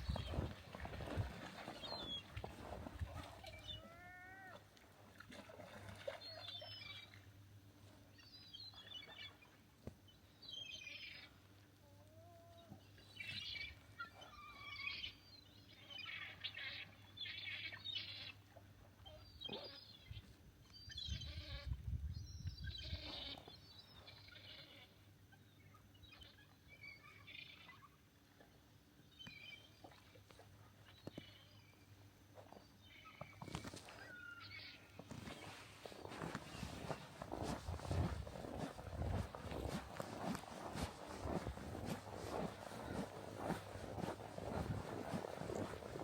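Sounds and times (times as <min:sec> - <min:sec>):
footsteps crunching in snow: 0:00.0 - 0:03.4, 0:35.0 - 0:46.0.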